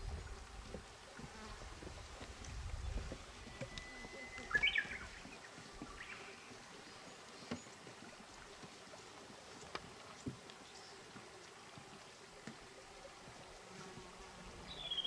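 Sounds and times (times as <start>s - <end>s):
faint ticks: 3.4s - 4.5s, 7.4s - 11.8s
bird singing: 3.4s - 7.7s, 14.7s - 15.0s.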